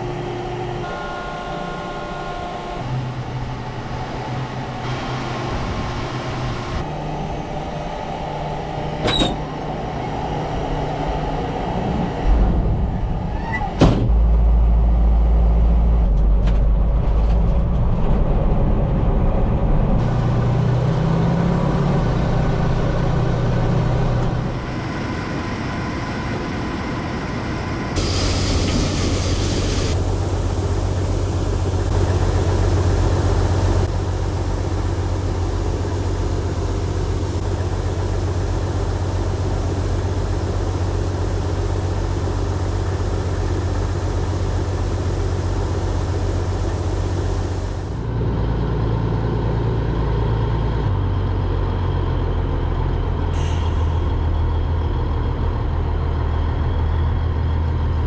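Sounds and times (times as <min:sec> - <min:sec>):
heavy diesel engines running: 0:00.0 - 0:58.0
burst of hiss: 0:28.0 - 0:30.0.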